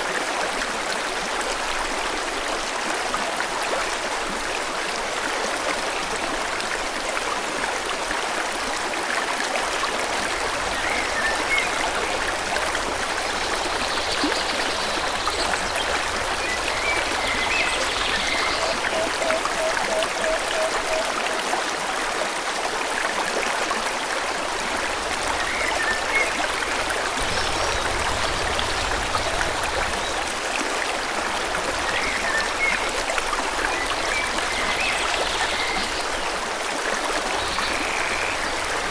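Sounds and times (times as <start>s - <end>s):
stream flowing: 0.0s - 38.9s
small birds chirping: 13.3s - 20.4s, 27.2s - 30.3s.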